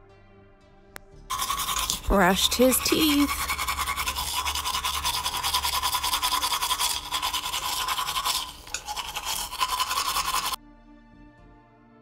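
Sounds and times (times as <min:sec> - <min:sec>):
toothbrush scrubbing teeth: 0:01.3 - 0:10.6.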